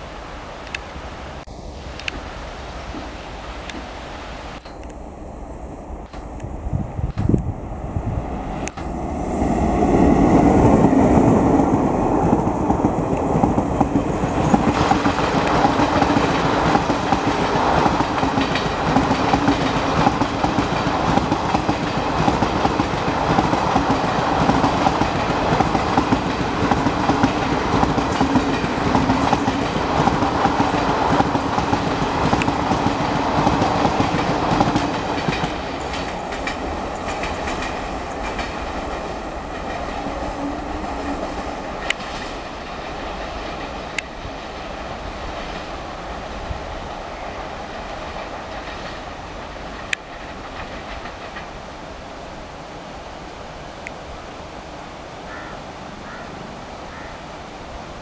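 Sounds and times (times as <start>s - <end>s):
train wheels rumbling and clattering: 5.5s - 51.9s.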